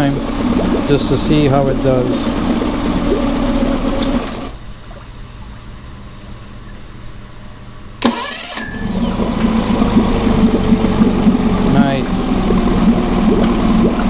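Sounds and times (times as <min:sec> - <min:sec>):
outboard motor cranking: 0:00.0 - 0:04.6, 0:08.0 - 0:14.0
outboard motor running: 0:00.0 - 0:05.0, 0:08.0 - 0:14.0.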